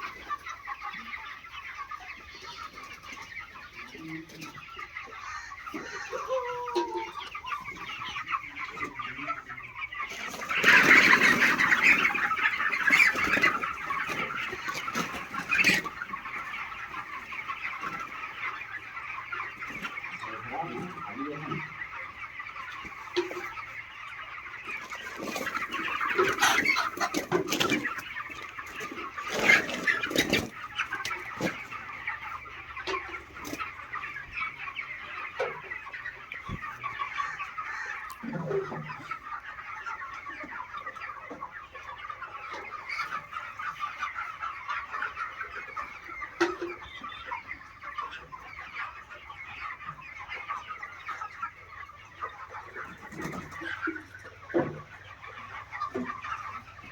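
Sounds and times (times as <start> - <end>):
flock of chickens clucking: 0.0 - 56.9.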